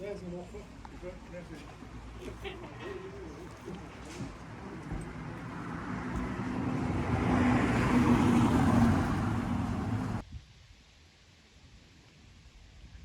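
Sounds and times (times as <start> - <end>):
vehicle passing close by: 3.0 - 10.2.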